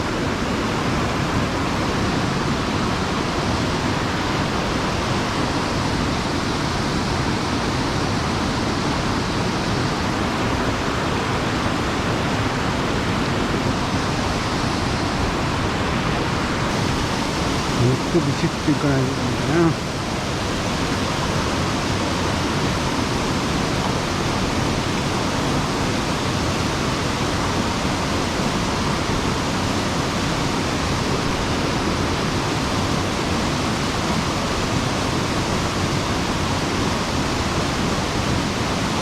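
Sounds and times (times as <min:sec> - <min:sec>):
water rushing down a stream: 0:00.0 - 0:39.0.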